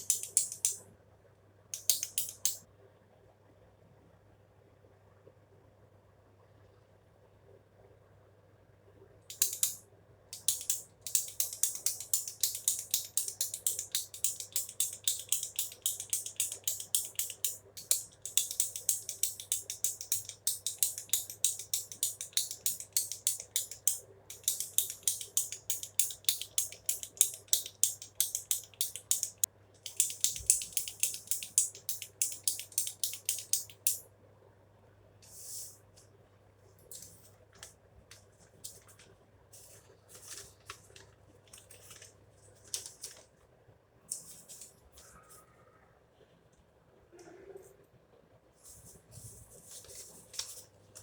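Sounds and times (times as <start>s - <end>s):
pen clicking rapidly: 0.0s - 0.8s, 9.3s - 9.8s, 10.4s - 34.0s.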